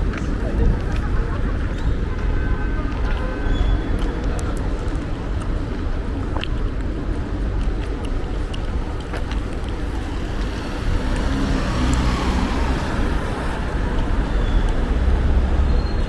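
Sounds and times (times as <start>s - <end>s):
traffic rumble: 0.0s - 16.0s
passing vehicle with tyre hiss: 10.6s - 15.7s.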